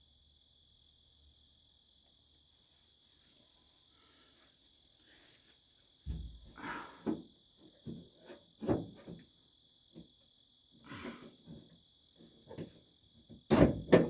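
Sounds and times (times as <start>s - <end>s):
crickets chirping: 0.0s - 14.0s
knocks and scrapes inside metal door: 6.1s - 9.3s, 11.0s - 14.0s.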